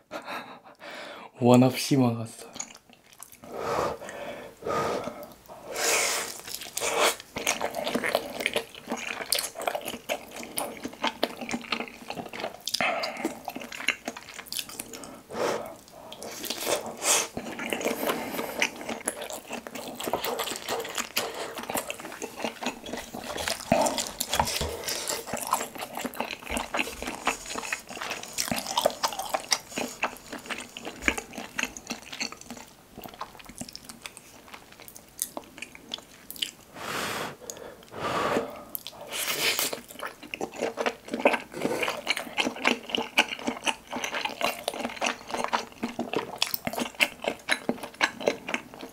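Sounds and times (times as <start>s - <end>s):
chewing soft wet food: 2.4s - 4.2s, 5.0s - 36.7s, 37.4s - 48.9s
breathy bursts: 36.7s - 38.8s.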